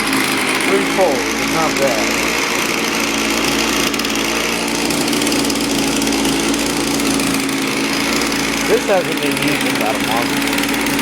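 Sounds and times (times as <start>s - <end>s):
two-stroke engine running: 0.0s - 11.0s.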